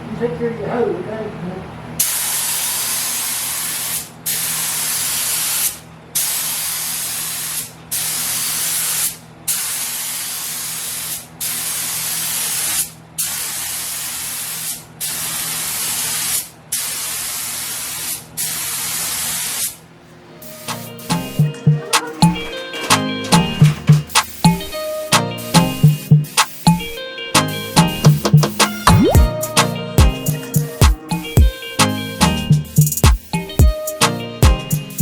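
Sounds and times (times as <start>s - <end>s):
paint spray gun hissing: 2.0s - 19.8s.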